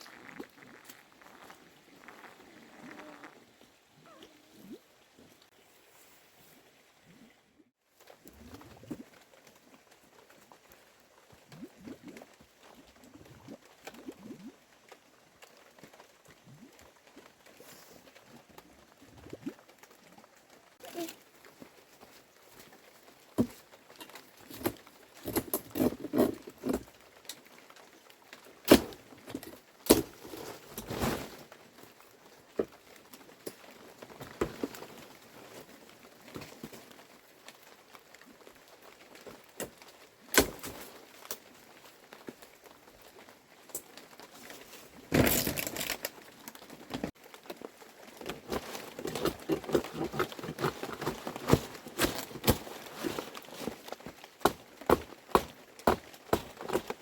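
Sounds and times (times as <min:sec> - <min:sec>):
rustling crinkling: 0:29.2 - 0:36.9, 0:43.9 - 0:57.0
objects knocking and clattering: 0:48.2 - 0:57.0.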